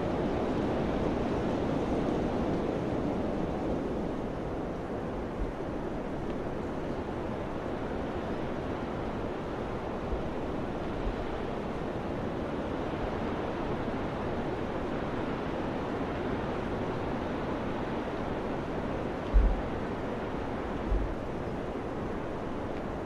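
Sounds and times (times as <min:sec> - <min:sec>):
wind buffeting microphone: 0:19.0 - 0:21.8.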